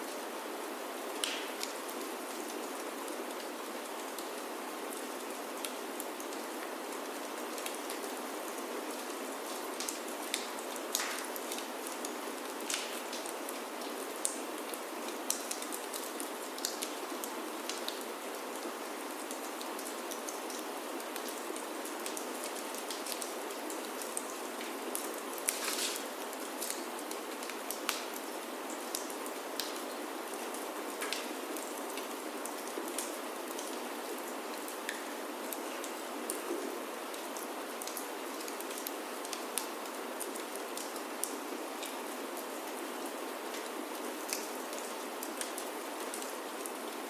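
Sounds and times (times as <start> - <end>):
rain on a wooden roof: 0.0 - 47.0
wood fire crackling: 9.4 - 14.7, 24.9 - 28.4.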